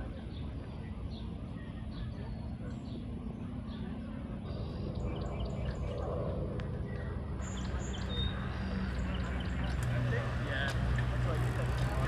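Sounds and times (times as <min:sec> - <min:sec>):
small birds chirping: 0:00.0 - 0:12.0
steady background rumble: 0:00.0 - 0:12.0.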